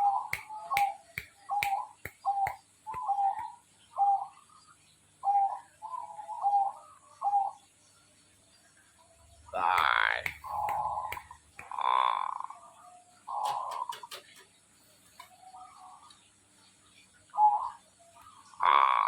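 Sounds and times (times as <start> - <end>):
dove cooing: 1.7 - 4.3, 5.2 - 7.6, 13.3 - 14.2, 17.4 - 17.8
sharp clicks: 9.8 - 11.8.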